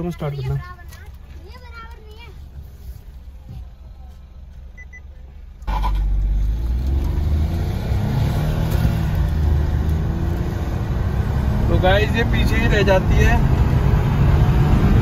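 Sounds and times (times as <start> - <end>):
car engine idling: 0.0 - 7.2
road noise: 0.0 - 15.0
car engine accelerating: 5.4 - 15.0.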